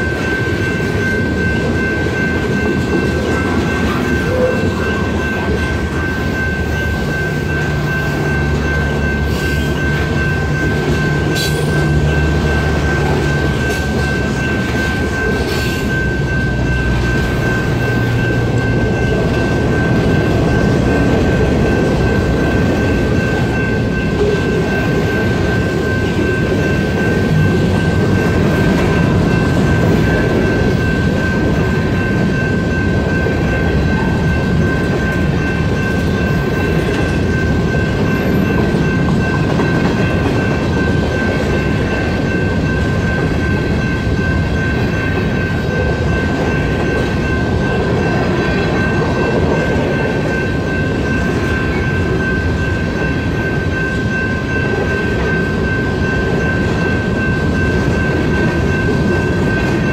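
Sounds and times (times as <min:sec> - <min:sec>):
crossing bell ringing: 0:00.0 - 0:59.9
freight train wheels on rail: 0:00.0 - 0:59.9.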